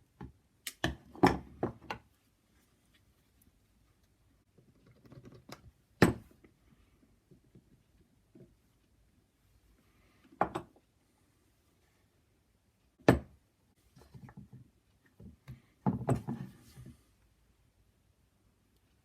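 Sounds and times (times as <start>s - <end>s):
small clicks and knocks: 4.5s - 5.8s.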